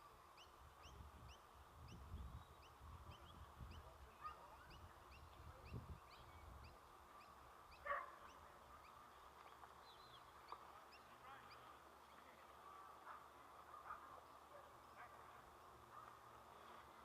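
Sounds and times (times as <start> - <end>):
low wind rumble: 0.2 - 10.4.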